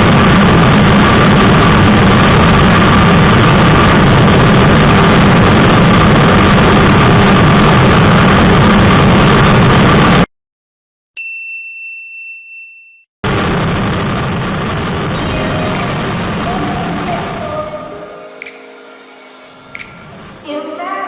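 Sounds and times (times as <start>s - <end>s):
wind rushing on microphone: 0.0s - 9.9s.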